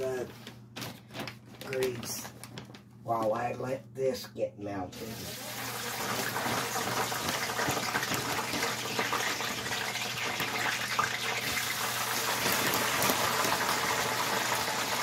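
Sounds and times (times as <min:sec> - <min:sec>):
fries sizzling in hot grease: 0:05.0 - 0:15.0.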